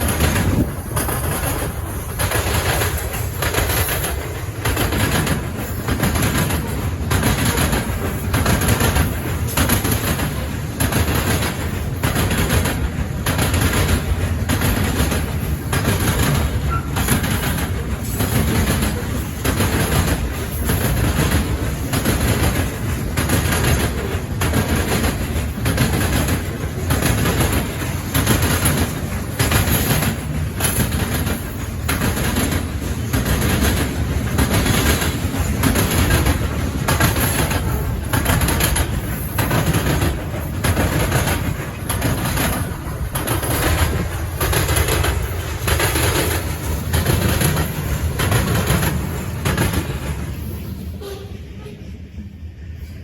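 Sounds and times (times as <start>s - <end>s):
train wheels clacking over rail joints: 0.0s - 51.8s
freight train rumble: 0.0s - 53.0s.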